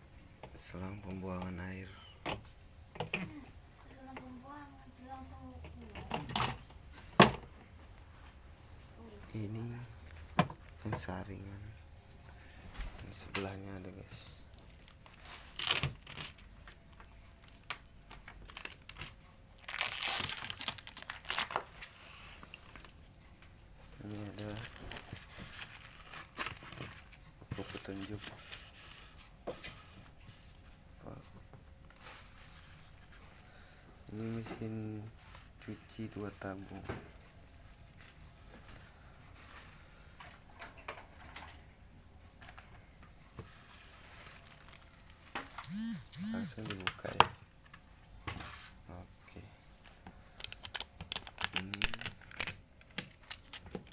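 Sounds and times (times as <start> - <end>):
packaging crinkling and rustling: 13.1 - 23.0, 24.0 - 28.7, 37.6 - 40.3, 43.4 - 45.8, 49.8 - 53.9.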